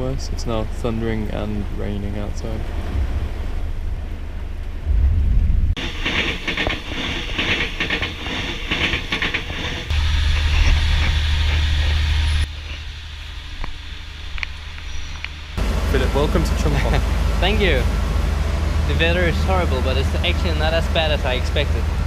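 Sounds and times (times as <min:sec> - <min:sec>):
train low rumble: 0:00.0 - 0:22.0
wheels clattering on rails: 0:05.8 - 0:22.0.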